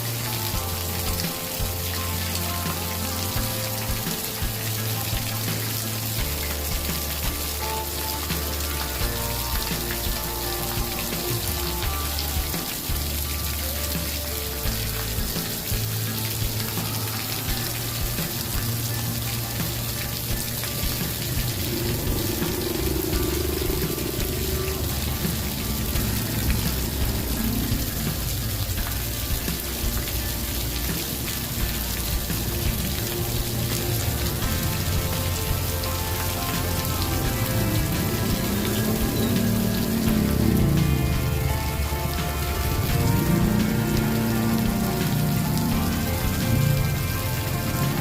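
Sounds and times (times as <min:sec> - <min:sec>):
campfire crackling: 0:00.0 - 0:48.0
low sustained musical tones: 0:00.0 - 0:48.0
steady water-like hiss: 0:00.0 - 0:48.0.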